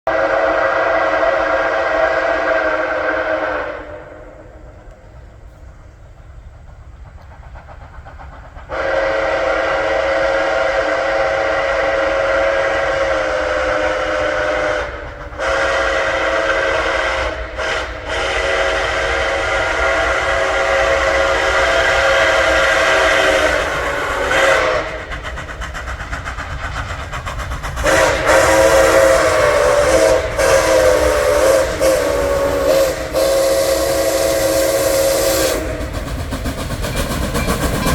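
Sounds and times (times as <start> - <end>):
steam locomotive whistle blasts: 0.1 - 4.8, 8.7 - 25.2, 27.8 - 36.1.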